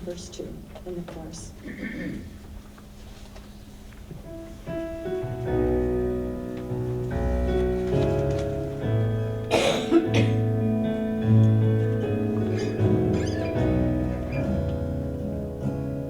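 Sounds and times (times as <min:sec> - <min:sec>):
keyboard chords: 0:04.3 - 0:16.0
bass notes: 0:05.4 - 0:16.0.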